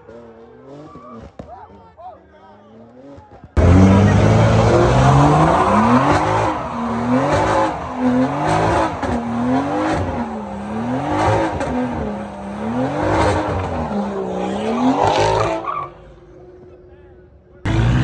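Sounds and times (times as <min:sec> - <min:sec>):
car engine revving: 0:02.9 - 0:16.6, 0:17.7 - 0:18.0.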